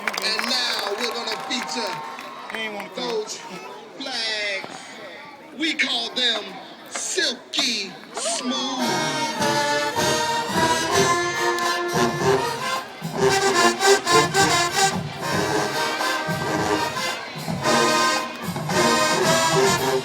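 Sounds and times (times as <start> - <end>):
marching band brass tune: 8.8 - 20.0
steady drum beat: 9.4 - 20.0.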